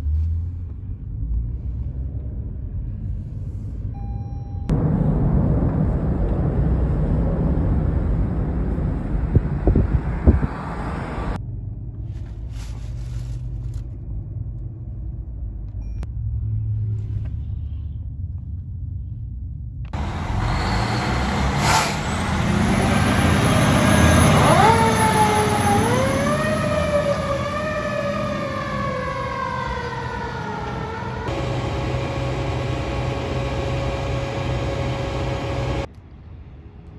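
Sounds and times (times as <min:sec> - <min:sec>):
fire truck engine rumble: 0:04.7 - 0:11.4, 0:20.0 - 0:35.9
fire truck siren: 0:20.0 - 0:35.9.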